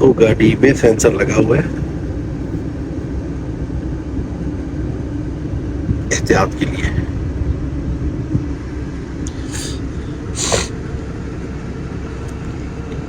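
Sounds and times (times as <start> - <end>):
car engine running: 0.0 - 13.0
short hiss: 9.3 - 9.8, 10.4 - 10.7.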